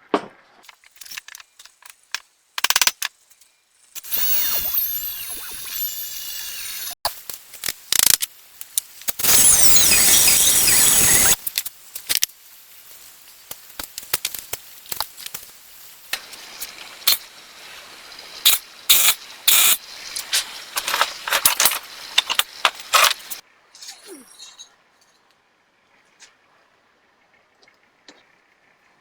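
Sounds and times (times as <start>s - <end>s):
metal tools clinking: 18.9s - 25.3s.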